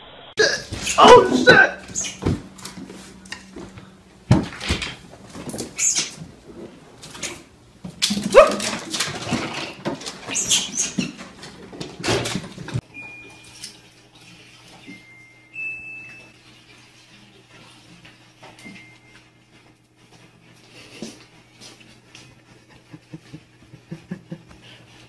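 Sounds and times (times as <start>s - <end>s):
small dog barking: 0.9s - 2.0s, 8.2s - 8.8s.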